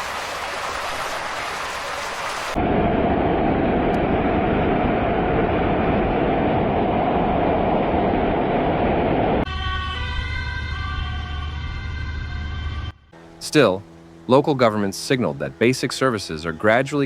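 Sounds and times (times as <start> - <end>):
water rushing: 0.0 - 9.4
low engine hum: 2.4 - 17.0.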